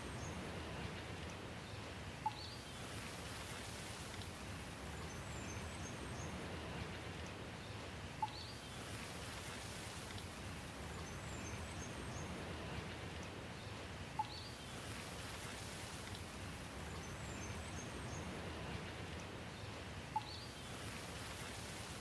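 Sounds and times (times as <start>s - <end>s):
steady rain hiss: 0.0s - 22.0s
faint high bird chirps: 2.2s - 2.6s, 14.2s - 14.6s, 20.2s - 20.8s.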